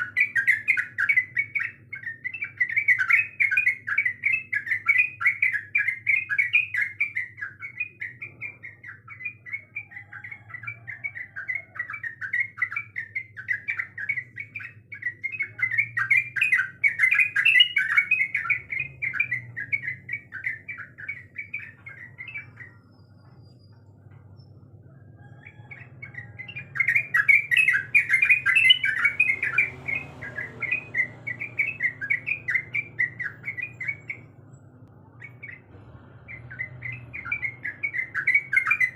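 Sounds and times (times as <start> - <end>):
bulbul chattering song: 0.0 - 38.9.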